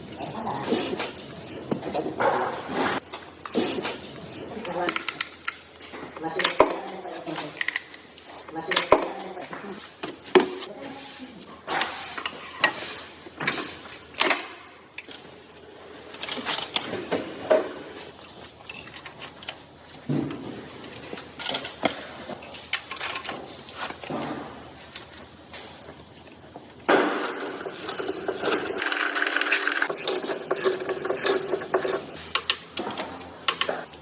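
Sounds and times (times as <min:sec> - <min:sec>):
metal parts and tools clinking: 0:03.4 - 0:10.2, 0:13.4 - 0:15.4, 0:16.0 - 0:34.0.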